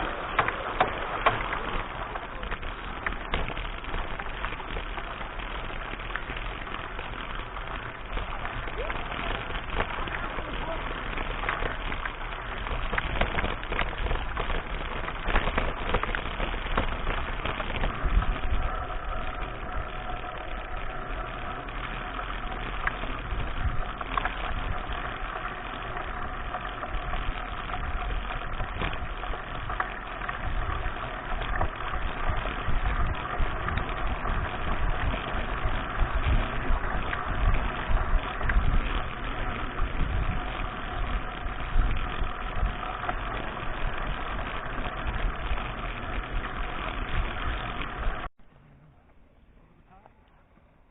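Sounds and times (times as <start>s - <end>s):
bike clicks and rattles: 0.0s - 48.3s
wind rumble on microphone: 0.0s - 48.3s.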